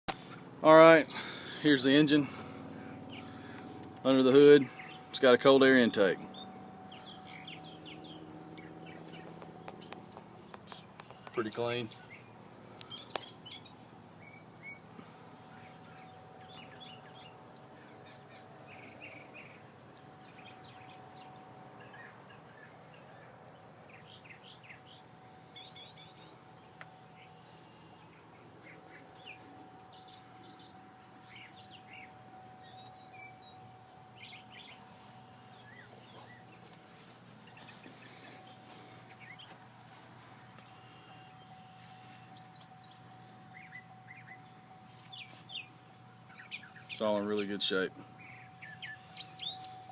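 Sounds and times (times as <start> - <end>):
birds chirping: 0.1 - 49.9
faint low hum: 0.1 - 49.9
thin steady tone: 24.8 - 49.9.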